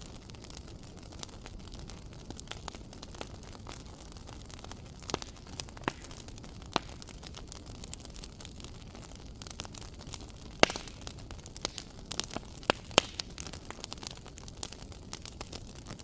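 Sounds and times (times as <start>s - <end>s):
wood fire crackling: 0.0s - 16.0s
sharp pops: 10.6s - 13.3s.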